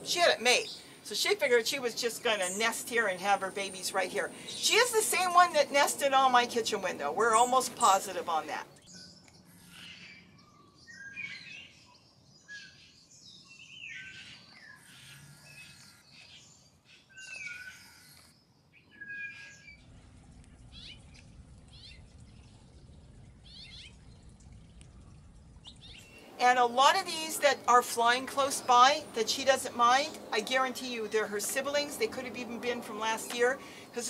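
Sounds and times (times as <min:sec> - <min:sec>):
birds chirping: 0:00.0 - 0:34.0
steady low hum: 0:19.4 - 0:34.0.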